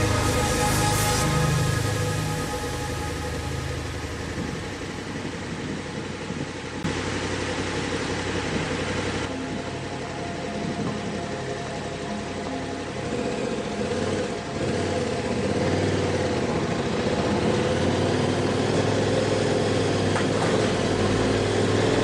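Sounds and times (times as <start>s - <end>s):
steady hiss: 0.0s - 6.8s
motorcycle engine at low revs: 4.4s - 22.0s.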